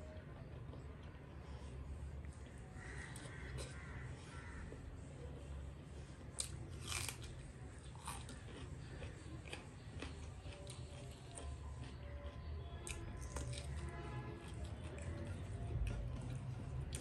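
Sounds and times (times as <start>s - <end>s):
low steady hum: 0.0s - 17.0s
chewing and lip smacks: 6.4s - 17.0s.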